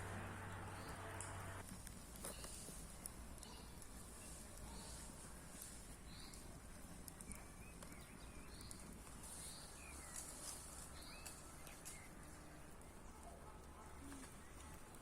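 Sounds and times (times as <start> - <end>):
steady outdoor hiss: 0.0 - 15.0
faint bird chirps: 3.4 - 5.1, 6.0 - 6.5.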